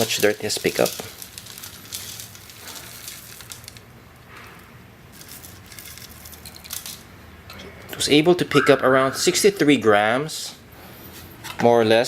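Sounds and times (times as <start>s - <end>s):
dry flakes rustling and pattering: 0.0s - 3.9s.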